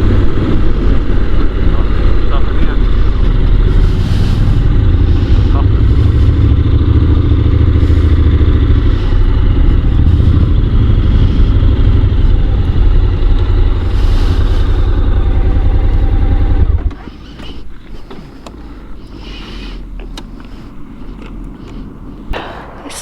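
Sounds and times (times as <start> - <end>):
wind rush on microphone: 0.0 - 7.1
motorcycle engine running: 0.0 - 22.8.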